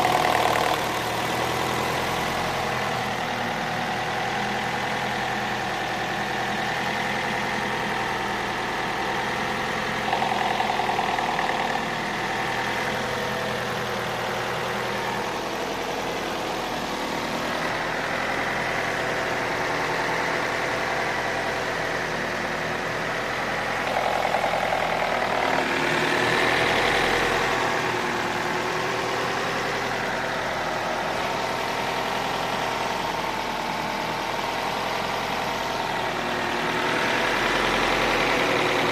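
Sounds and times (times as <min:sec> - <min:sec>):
knocking in engine: 0:00.0 - 0:01.7, 0:09.1 - 0:16.4, 0:23.5 - 0:29.6
car engine idling: 0:00.0 - 0:38.9.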